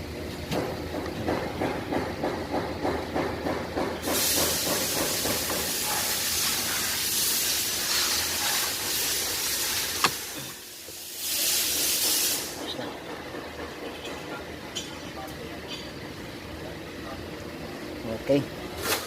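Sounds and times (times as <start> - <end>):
loud steady hiss: 4.0 - 12.8.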